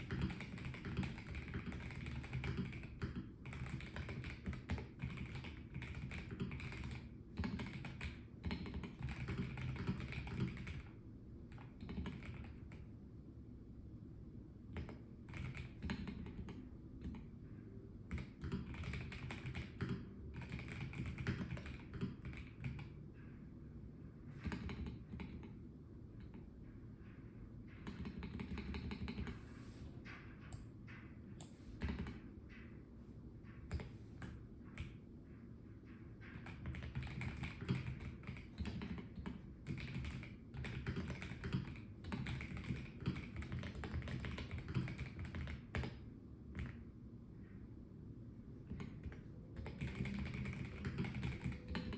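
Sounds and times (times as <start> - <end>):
mechanical keyboard typing: 0.0 - 10.9, 11.5 - 12.8, 14.7 - 17.2, 18.1 - 22.9, 24.4 - 25.5, 27.8 - 29.4, 36.3 - 46.0, 48.7 - 51.9.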